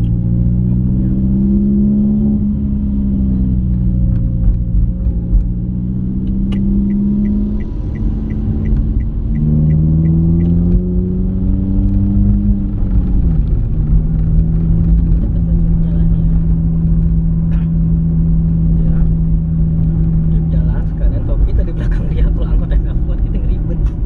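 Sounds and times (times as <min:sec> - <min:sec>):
car engine under way: 0:00.0 - 0:24.0
turn signal ticking: 0:03.7 - 0:11.0.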